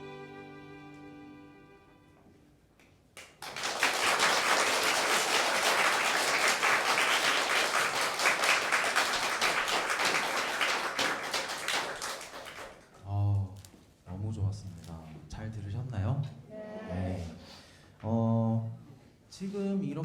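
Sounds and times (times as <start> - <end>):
audience applauding: 3.2 - 12.9.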